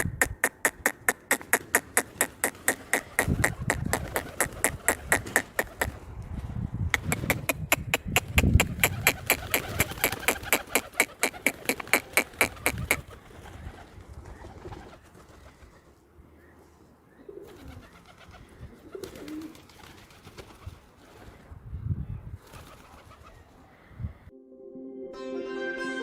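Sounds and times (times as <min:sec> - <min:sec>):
pigeons cooing: 0:00.0 - 0:06.0, 0:07.0 - 0:15.8, 0:17.1 - 0:20.5
fast sharp clicks: 0:06.9 - 0:13.0.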